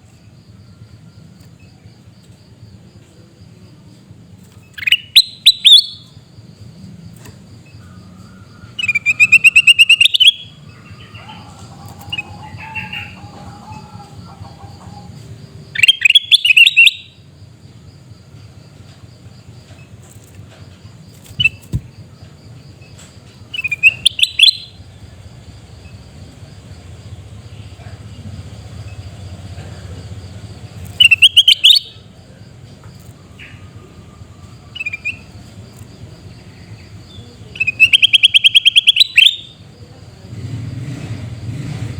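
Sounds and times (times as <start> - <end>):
bulbul harsh calls: 4.7 - 6.2, 7.8 - 17.3, 21.2 - 22.1, 23.4 - 26.1, 27.0 - 32.3, 33.3 - 39.7.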